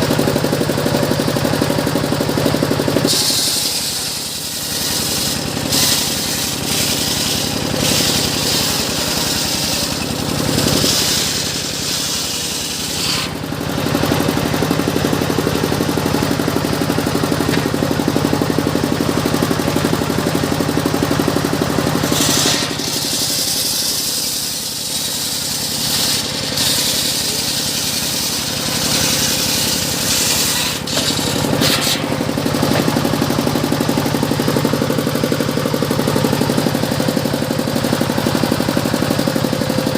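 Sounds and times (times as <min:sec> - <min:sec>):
engine drone: 0:00.0 - 0:39.9
saw blade cutting hiss: 0:03.1 - 0:13.5, 0:22.0 - 0:32.3.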